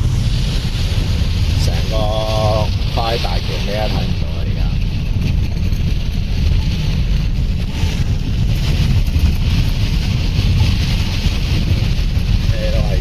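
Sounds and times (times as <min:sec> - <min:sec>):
hiss of rain and spray: 0:00.0 - 0:05.0
tyres on flooded road: 0:00.0 - 0:13.0
wind buffeting a car: 0:00.0 - 0:13.0.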